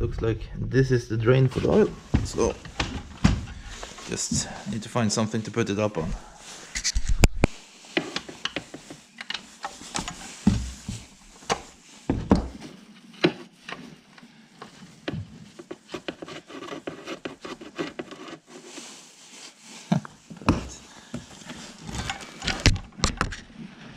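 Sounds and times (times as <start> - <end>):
heavy thuds: 0.0 - 4.9
knocks clunks and scrapes: 0.0 - 5.0, 20.0 - 23.5.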